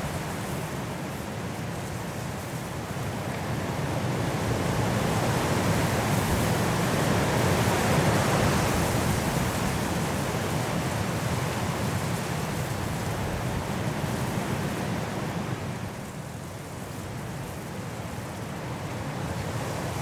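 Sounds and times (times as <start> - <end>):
high wind through trees: 0.0 - 20.0.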